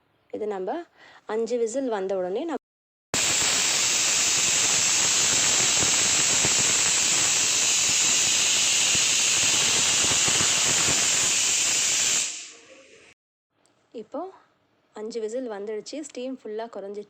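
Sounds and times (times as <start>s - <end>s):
pressure cooker whistling: 3.2s - 13.2s.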